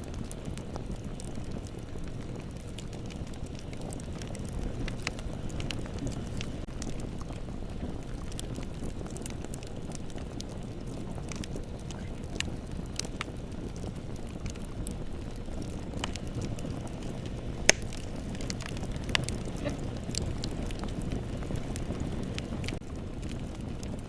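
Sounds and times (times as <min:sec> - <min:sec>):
bonfire burning rumble: 0:00.0 - 0:24.0
fire crackles: 0:00.0 - 0:24.0
sharp loud fire pop: 0:17.7 - 0:18.0.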